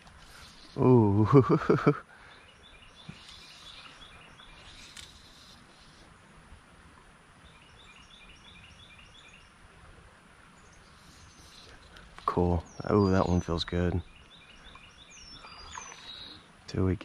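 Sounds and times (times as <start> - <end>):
faint creek ambience: 0.0 - 17.0
bird chirping: 2.2 - 5.5, 7.5 - 9.5, 10.6 - 16.5.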